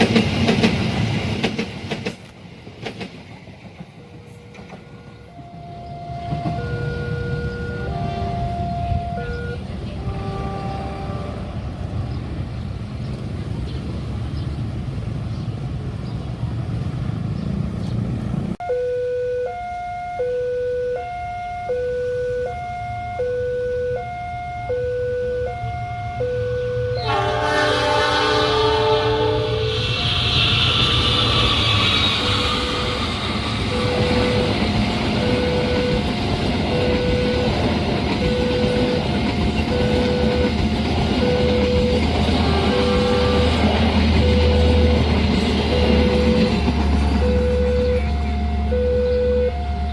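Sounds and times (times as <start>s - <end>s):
train rumbling past: 0.0s - 18.6s, 25.3s - 49.9s
level crossing two-tone alarm: 5.3s - 9.6s, 18.6s - 27.1s, 32.2s - 43.6s, 44.2s - 45.1s, 45.7s - 46.6s, 47.2s - 49.9s
two-note crossing alarm chime: 18.6s - 27.0s.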